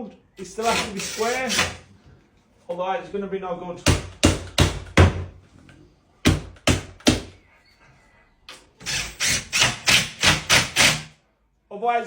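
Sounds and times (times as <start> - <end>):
knocks on wooden cabinet: 3.9 - 5.3.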